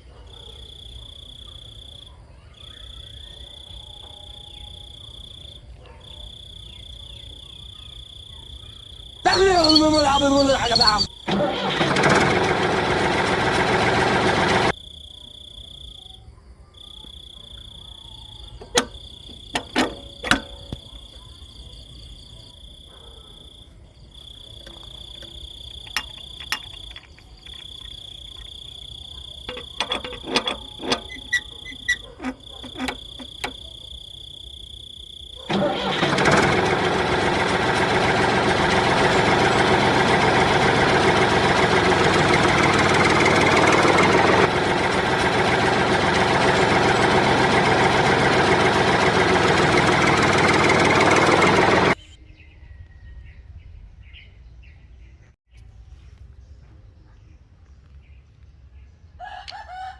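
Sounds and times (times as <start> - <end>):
high insect-like trill: 8.8 - 11.2
small engine running: 9.2 - 14.8, 18.6 - 20.9, 24.6 - 33.7, 35.5 - 52.2
metallic knocks and clicks: 18.6 - 20.9, 24.6 - 28.5, 29.5 - 33.7.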